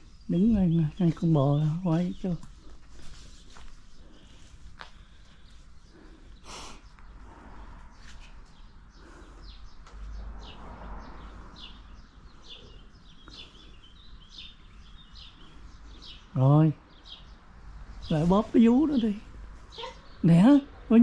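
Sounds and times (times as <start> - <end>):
small bird chirping: 8.0 - 20.7.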